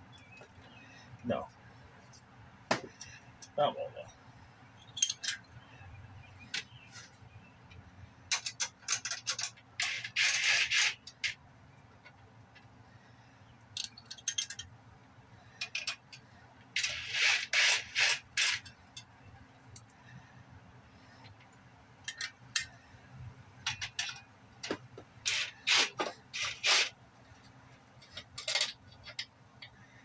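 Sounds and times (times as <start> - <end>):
scraping and rubbing of parts: 8.3 - 11.4, 15.6 - 19.1, 23.6 - 29.8.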